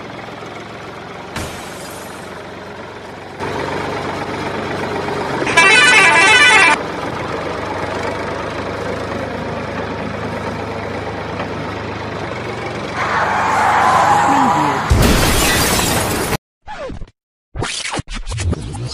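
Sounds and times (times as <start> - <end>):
truck engine hum: 0.0 - 16.4
vehicle horn blaring: 5.4 - 6.8.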